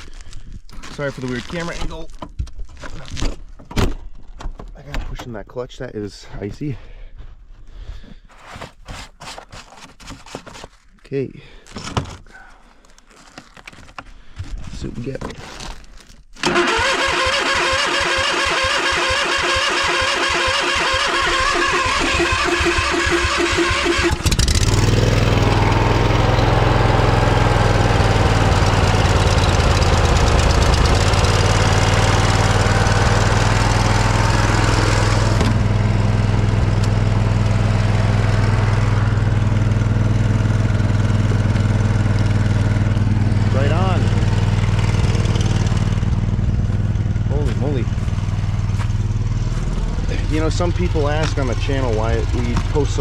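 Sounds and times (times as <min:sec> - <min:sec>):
starter cranking engine: 0:16.4 - 0:46.3
lawn tractor engine running: 0:16.4 - 0:53.0.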